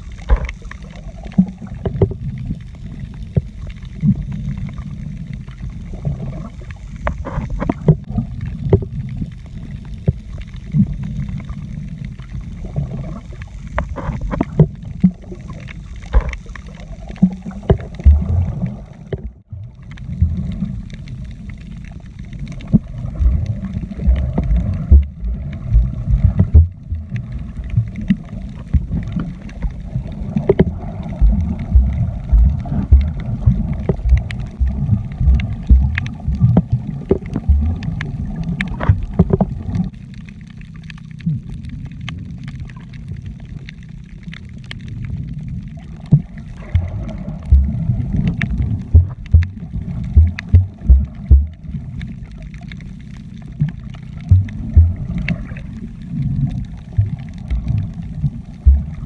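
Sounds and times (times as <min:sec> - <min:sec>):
muffled sloshing water: 0:00.0 - 0:59.0
dense low rumble: 0:08.0 - 0:40.6, 0:41.2 - 0:59.0
knocks and thumps: 0:30.5 - 0:36.7, 0:48.9 - 0:49.6, 0:50.2 - 0:51.6, 0:54.3 - 0:55.1, 0:58.7 - 0:59.0.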